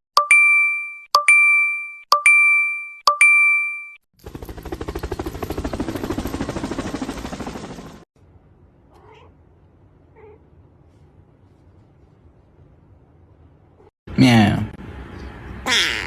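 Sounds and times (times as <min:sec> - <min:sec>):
faint cat meows: 0:08.9 - 0:09.4.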